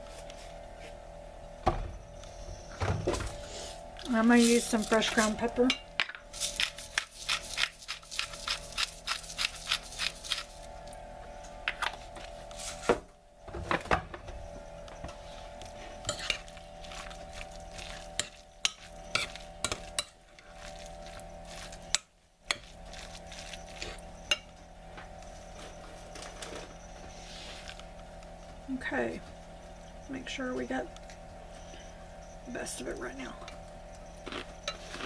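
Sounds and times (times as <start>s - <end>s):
spoon clinking and scraping bowl: 4.4s - 10.6s, 16.0s - 24.6s, 34.1s - 35.0s.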